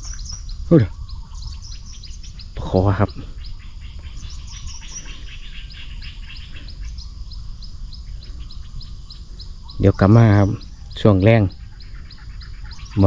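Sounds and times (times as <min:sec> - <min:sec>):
chorus of bird calls: 0:00.0 - 0:13.0.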